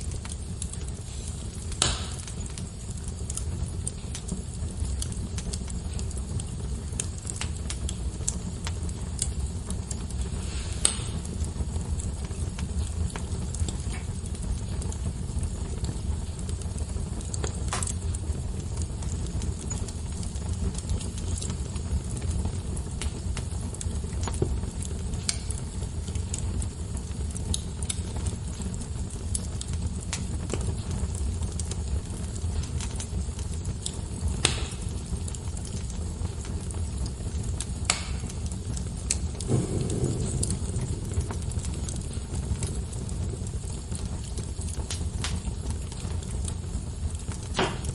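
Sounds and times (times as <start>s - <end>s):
crackles and pops of burning logs: 0.0s - 47.9s
wood fire burning: 0.0s - 47.9s.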